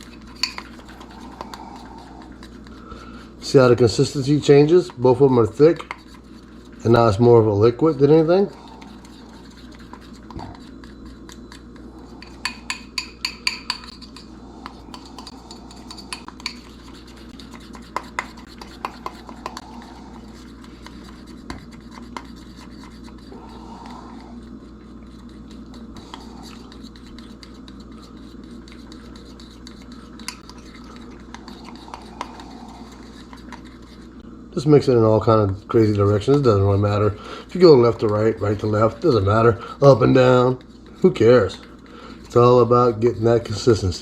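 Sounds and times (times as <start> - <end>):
fork scraping and clinking dish: 0.0 - 2.7, 8.5 - 34.0.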